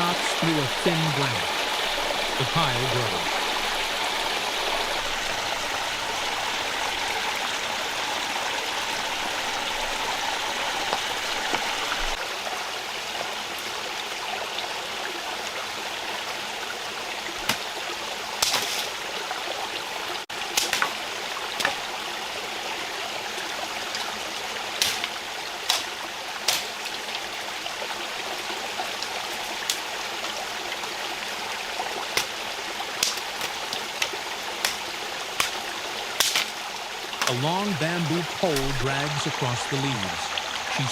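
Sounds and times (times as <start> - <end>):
stream rushing over rocks: 0.0 - 40.9
sharp knocks and snaps: 33.0 - 34.8, 36.2 - 36.6.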